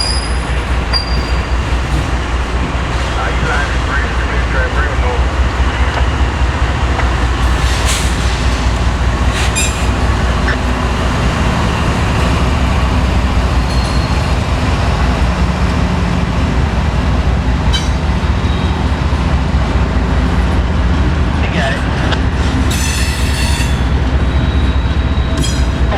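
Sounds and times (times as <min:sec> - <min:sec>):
sharp clanks and squeaks: 0:00.0 - 0:01.6, 0:09.4 - 0:10.6, 0:13.7 - 0:14.4, 0:17.7 - 0:18.0, 0:24.8 - 0:25.8
train wheels rumbling on rail: 0:00.0 - 0:25.9.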